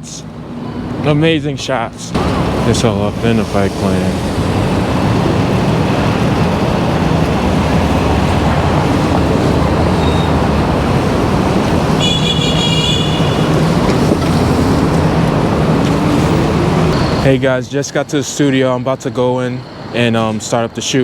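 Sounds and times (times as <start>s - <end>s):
city traffic noise: 0.0s - 21.0s
wind rush: 2.2s - 17.3s
high-pitched horn toot: 12.0s - 13.6s.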